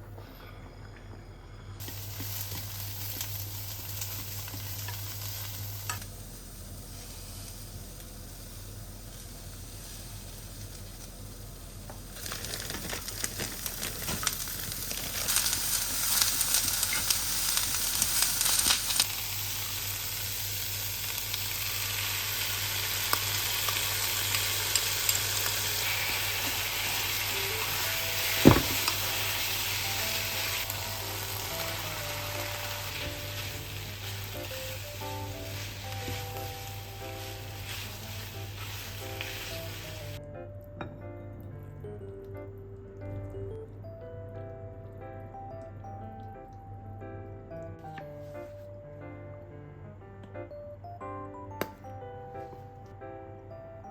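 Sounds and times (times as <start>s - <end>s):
food sizzling in a pan: 1.8s - 40.2s
sharp knock: 28.4s - 28.9s.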